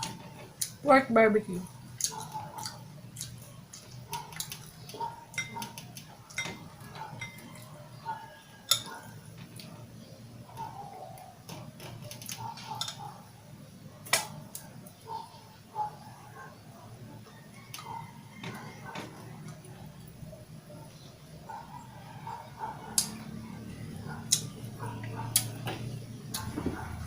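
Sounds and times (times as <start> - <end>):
low background hum: 0.0 - 27.0
chewing with mouth clicks: 1.6 - 6.4, 24.1 - 25.6.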